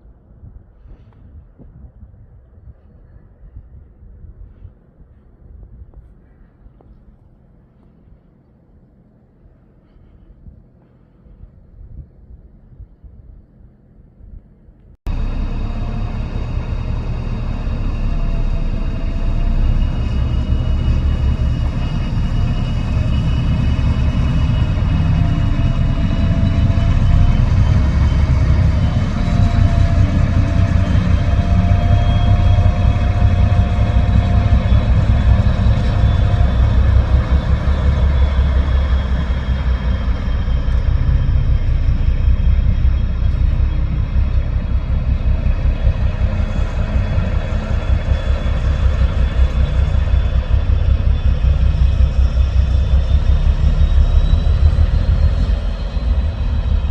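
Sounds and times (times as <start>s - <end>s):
diesel locomotive engine throbbing: 15.1s - 56.9s
faint whining tones: 15.1s - 56.9s.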